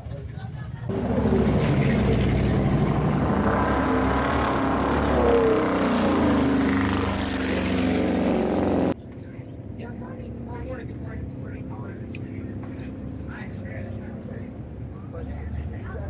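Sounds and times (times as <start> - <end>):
vehicle engine revving: 0.9 - 9.0.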